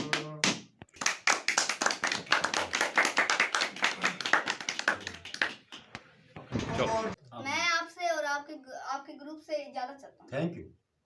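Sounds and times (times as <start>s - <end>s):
small group clapping: 0.0s - 6.2s.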